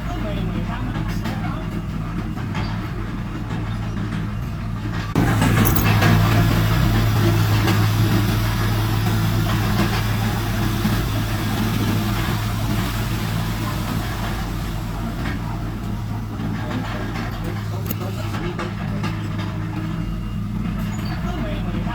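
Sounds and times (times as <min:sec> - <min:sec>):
heavy diesel engine running: 0:00.0 - 0:21.9
mechanical noise: 0:02.5 - 0:09.9, 0:14.0 - 0:21.8.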